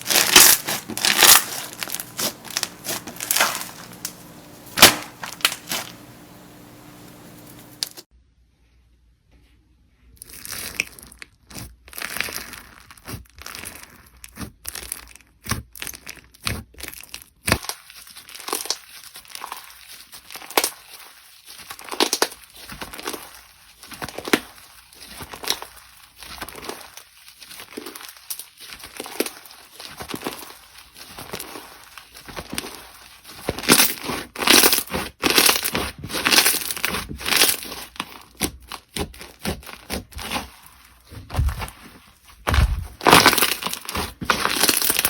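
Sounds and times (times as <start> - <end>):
slime crackling when squeezed: 0.0 - 8.0.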